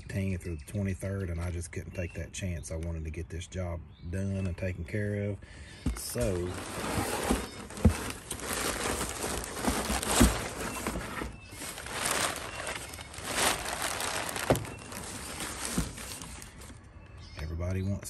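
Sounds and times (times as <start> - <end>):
packaging crinkling and rustling: 5.9 - 16.8.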